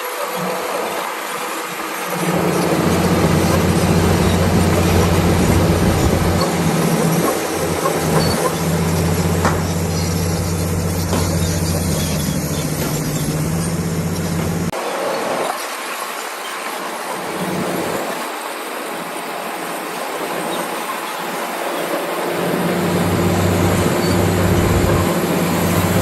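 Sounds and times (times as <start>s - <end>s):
steel tracks rattling and grinding: 1.1s - 14.7s, 20.1s - 26.0s
diesel engine humming: 2.1s - 14.7s, 22.4s - 26.0s.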